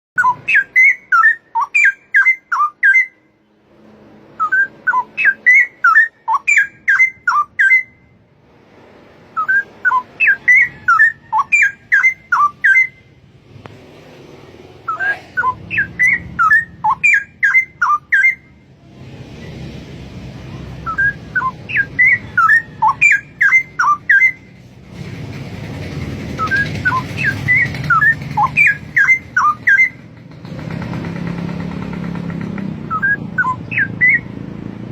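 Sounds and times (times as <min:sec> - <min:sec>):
bird singing liquid whistles: 0:04.4 - 0:08.0, 0:09.4 - 0:13.0, 0:14.9 - 0:18.4, 0:20.8 - 0:24.4, 0:32.9 - 0:34.3.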